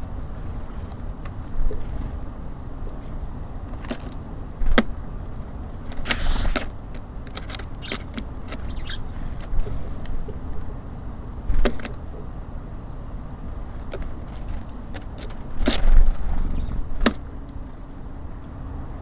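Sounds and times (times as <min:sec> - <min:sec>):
low steady rumble: 0:00.0 - 0:19.0
birds pecking and tapping: 0:02.9 - 0:05.0, 0:05.8 - 0:10.7, 0:11.4 - 0:12.2, 0:13.8 - 0:17.8
brief rustle: 0:05.9 - 0:09.8.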